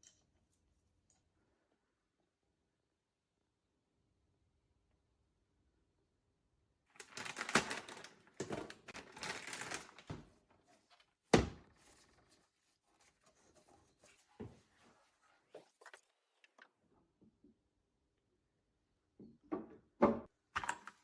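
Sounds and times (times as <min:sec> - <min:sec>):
objects rustling and clattering: 0:07.0 - 0:16.7.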